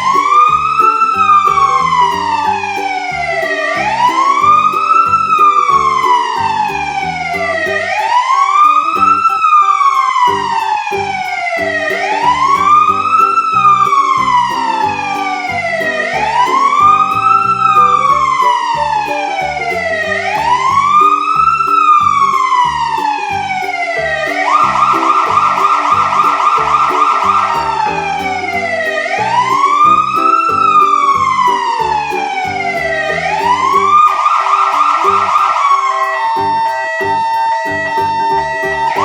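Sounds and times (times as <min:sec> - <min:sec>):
background music with beat: 0:00.0 - 0:39.0
fire truck siren wailing: 0:00.0 - 0:39.0.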